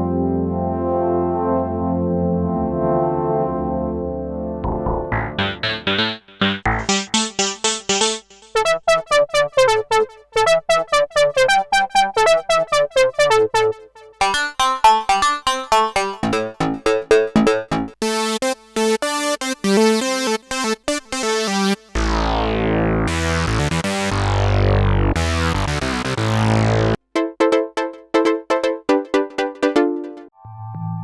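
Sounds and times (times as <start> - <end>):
synthesizer chord with filter sweep: 0.0 - 31.0
synthesizer plucked notes: 3.8 - 19.1, 22.0 - 31.0.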